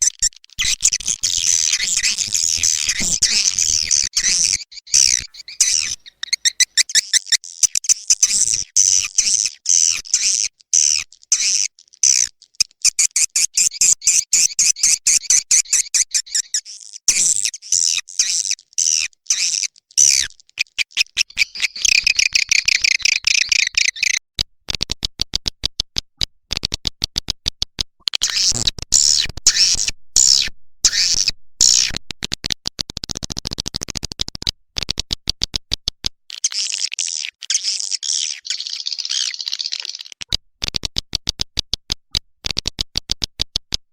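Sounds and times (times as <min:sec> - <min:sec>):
high-pitched twittering chirps: 0:00.0 - 0:24.2, 0:36.4 - 0:40.2.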